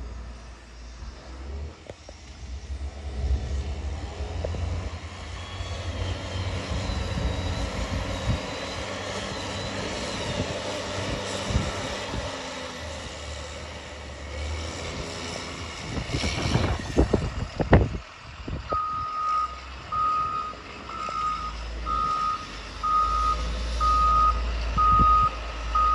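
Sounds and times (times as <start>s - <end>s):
diesel engine running low: 0.0s - 25.9s
reversing alarm beeping: 18.7s - 25.9s.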